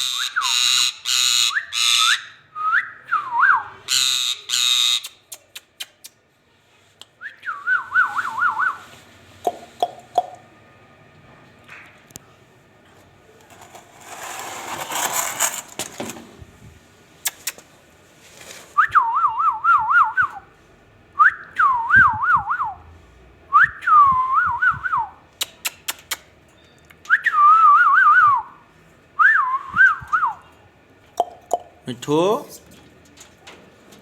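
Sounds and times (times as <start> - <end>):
noisy rustle: 7.8 - 9.8, 13.4 - 18.9.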